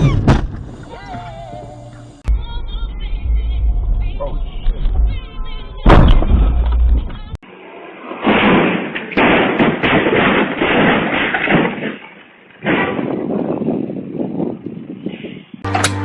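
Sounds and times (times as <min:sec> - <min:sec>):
low rumble: 0:00.0 - 0:07.5
vehicle collision crash: 0:05.8 - 0:07.4, 0:08.2 - 0:12.0.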